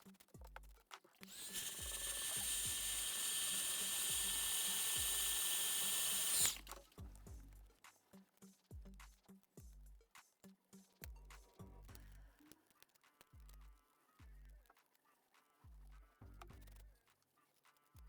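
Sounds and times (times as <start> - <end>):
background music with steady beat: 0.0 - 18.0
small electric tool whining: 1.2 - 7.0.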